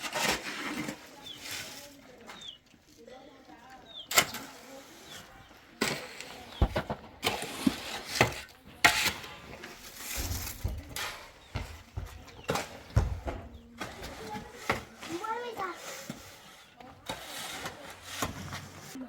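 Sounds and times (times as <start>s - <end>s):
hard objects scraping: 0.0s - 3.2s, 3.9s - 19.0s
hard objects knocking: 6.5s - 7.5s, 10.1s - 15.2s.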